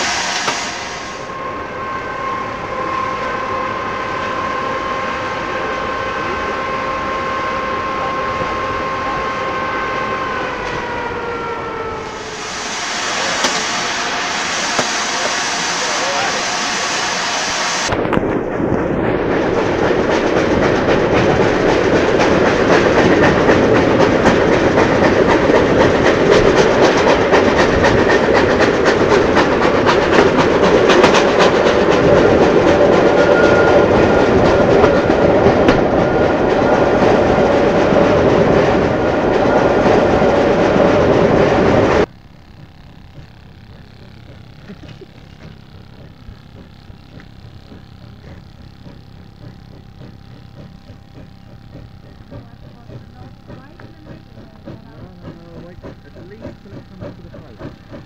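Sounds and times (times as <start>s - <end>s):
train coach running noise: 0.0s - 58.0s
train wheels clattering over rail joints: 18.2s - 40.0s, 44.8s - 58.0s.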